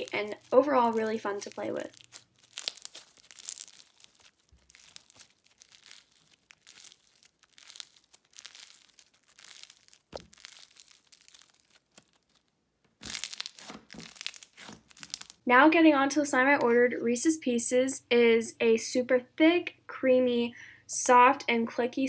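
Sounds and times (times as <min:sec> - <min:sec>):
slime crackling and popping: 0:00.0 - 0:15.5.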